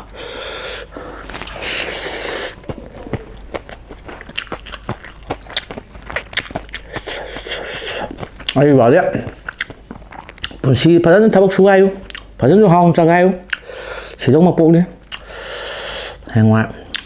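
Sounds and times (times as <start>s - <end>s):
close chewing with wet mouth clicks: 0.9s - 10.7s, 12.0s - 12.4s, 13.4s - 13.8s, 15.0s - 15.4s.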